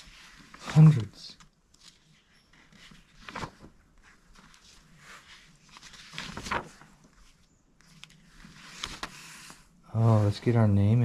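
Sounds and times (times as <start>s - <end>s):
paper pages turning: 0.0s - 10.5s.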